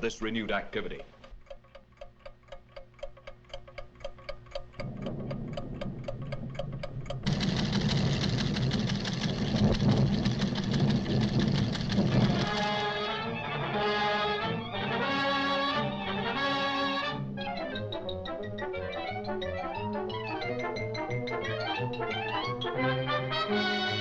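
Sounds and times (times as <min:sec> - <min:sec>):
rapid mechanical ticking: 0:00.0 - 0:13.3
loud dense rumbling: 0:04.8 - 0:13.3.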